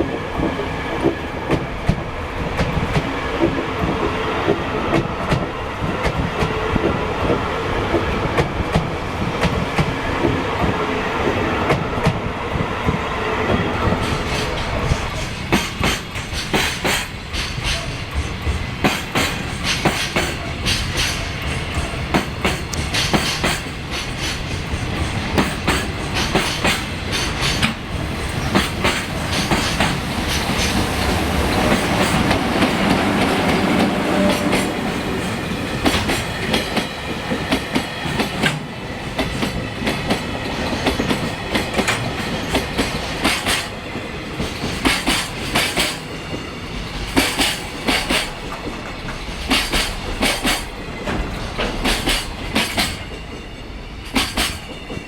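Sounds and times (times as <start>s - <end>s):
train wheels clicking over rail joints: 13.9s - 55.0s.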